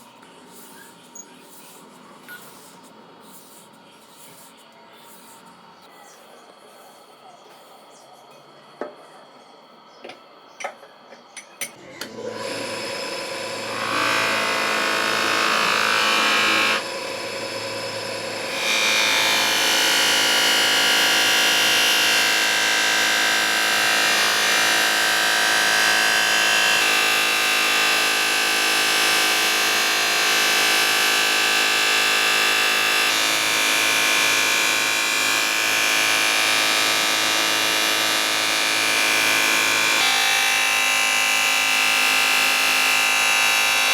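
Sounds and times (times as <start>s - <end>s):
electric power tool working metal: 11.8s - 43.9s.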